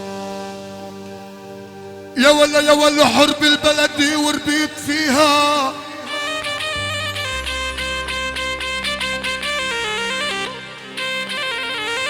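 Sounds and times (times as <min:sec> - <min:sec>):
low drone: 0:00.0 - 0:11.7
person singing: 0:02.2 - 0:12.0
instrumental melody in quick notes: 0:05.5 - 0:12.0.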